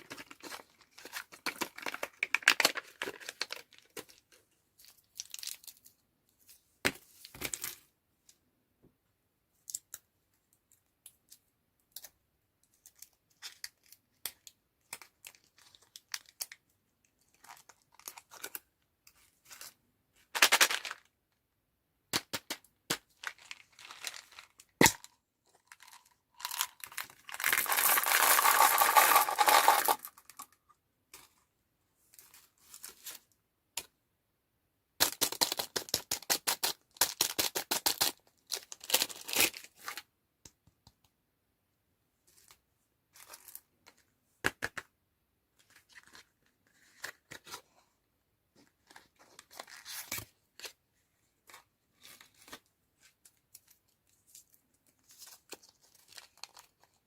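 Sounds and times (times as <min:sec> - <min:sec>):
plastic wrappers crinkling: 0:23.2 - 0:24.9, 0:25.6 - 0:30.5
wrapper tearing: 0:25.7 - 0:30.4.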